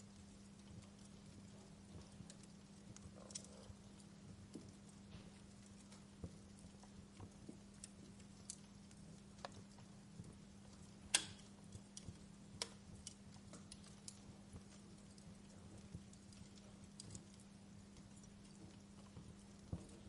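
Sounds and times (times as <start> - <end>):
faint steady hum: 0.0 - 20.0
wood fire crackling: 0.0 - 20.0
fire pop: 11.0 - 11.5.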